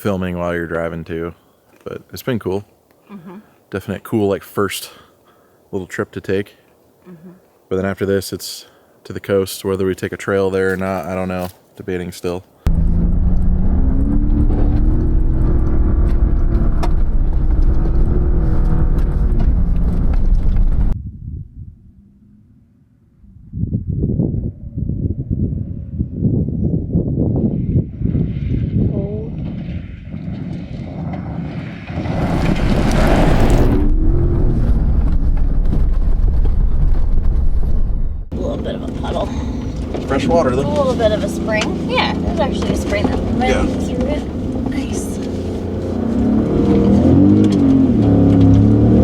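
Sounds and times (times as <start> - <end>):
pickup truck engine rumbling: 29.5 - 49.0.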